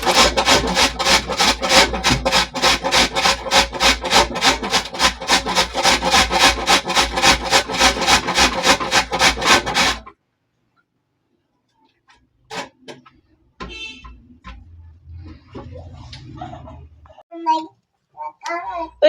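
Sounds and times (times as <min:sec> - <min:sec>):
radish grated on hand grater: 0:00.0 - 0:10.1.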